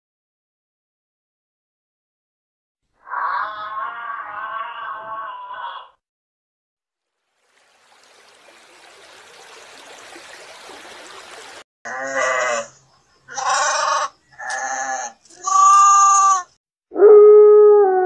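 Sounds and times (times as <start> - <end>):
sheep bleating: 3.4 - 6.0, 13.3 - 16.5.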